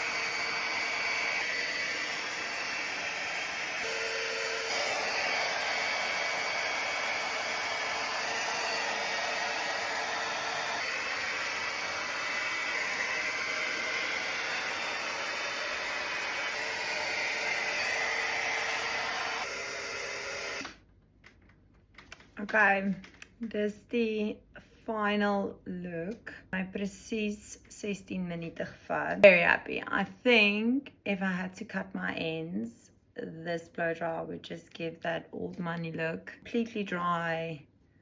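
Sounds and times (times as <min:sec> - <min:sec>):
hot-air brush humming: 0:00.0 - 0:20.8.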